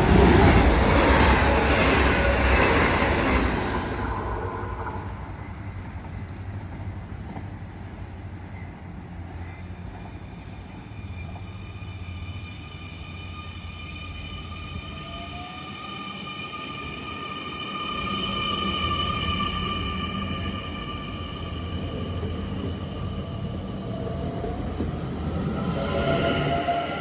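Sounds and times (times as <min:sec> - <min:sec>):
high-pitched multi-tone whine: 0:09.4 - 0:27.0.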